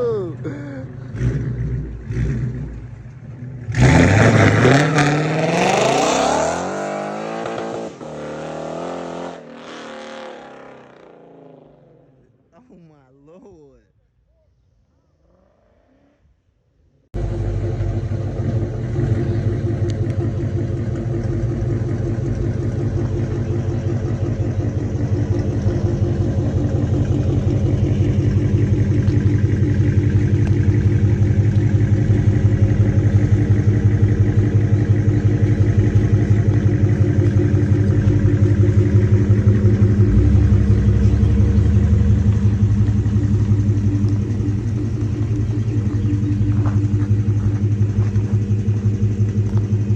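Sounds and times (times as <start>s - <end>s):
car exhaust burbling loudly: 0.0s - 11.2s, 17.2s - 49.9s.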